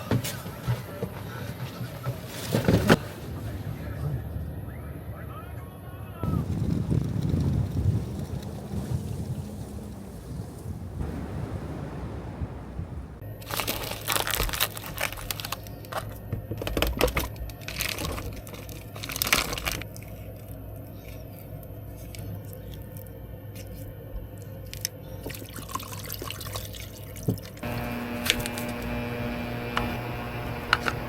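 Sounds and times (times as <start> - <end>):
water running and splashing: 6.5 - 15.4, 25.2 - 31.0
water drips: 24.4 - 27.7
steady electric hum: 27.6 - 31.0.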